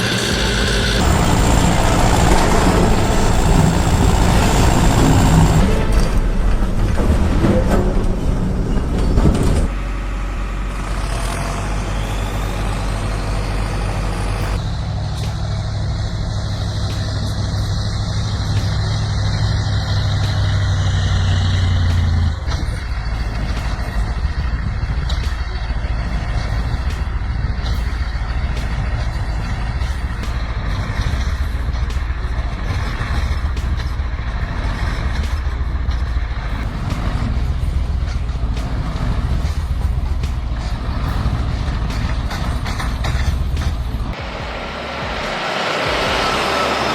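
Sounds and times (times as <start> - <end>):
knocks and clatter: 0.0 - 9.8, 14.4 - 46.9
heavy vehicle engines running: 0.0 - 46.9.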